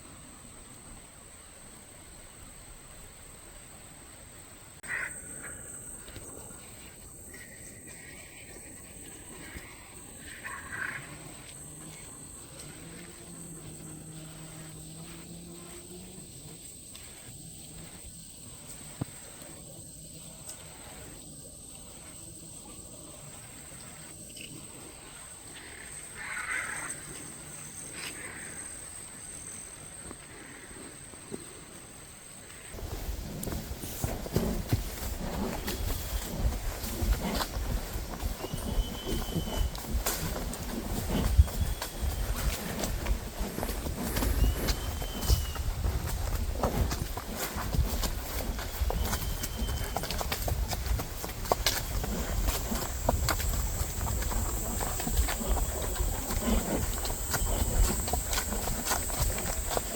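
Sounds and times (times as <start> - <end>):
insect chirring: 4.8 - 59.9
soft rustling sounds: 32.5 - 59.9.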